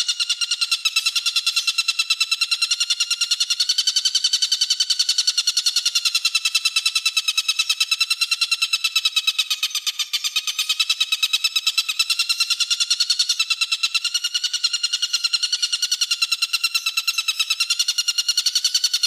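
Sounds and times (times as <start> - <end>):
songbird rapid trill: 0.0 - 19.0.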